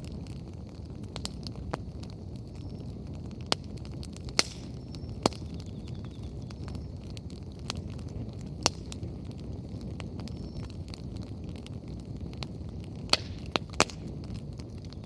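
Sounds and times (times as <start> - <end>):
bonfire flames crackling: 0.0 - 15.0
firewood popping: 0.0 - 15.0.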